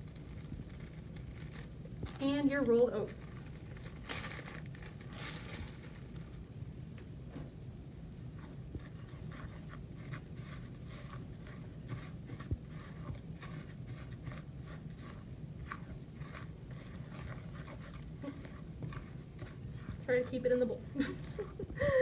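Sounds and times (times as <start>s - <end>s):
spoon scraping dry flour in bowl: 7.5s - 21.8s.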